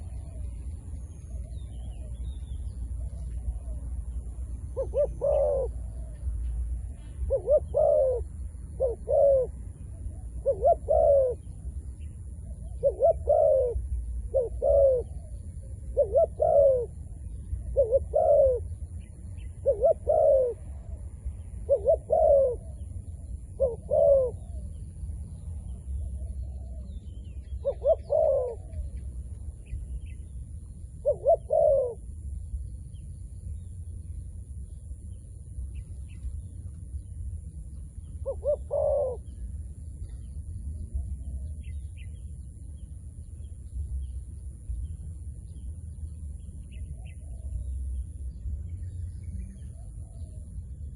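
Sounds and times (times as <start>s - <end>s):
dove cooing: 0.0s - 24.8s, 25.9s - 30.2s, 31.0s - 32.3s, 37.6s - 42.1s
steady low rumble: 0.0s - 50.9s.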